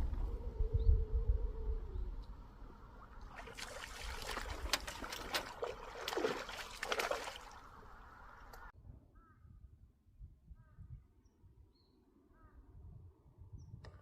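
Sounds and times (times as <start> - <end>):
water splashing and trickling: 2.6 - 8.7.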